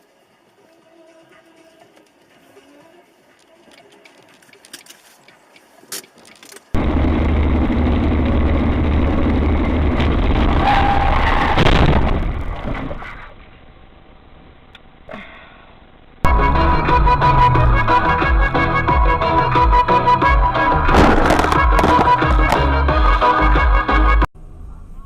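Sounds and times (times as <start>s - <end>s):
car interior vehicle noise: 6.7s - 14.2s.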